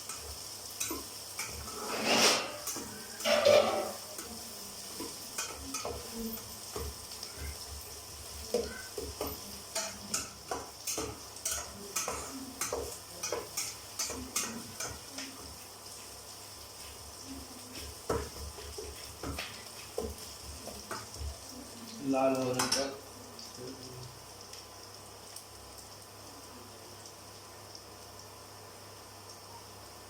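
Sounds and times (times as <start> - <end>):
spatula scraping and knocking pan: 0.0 - 7.8, 8.4 - 15.5, 17.8 - 21.3
onions sizzling in oil: 0.0 - 30.0.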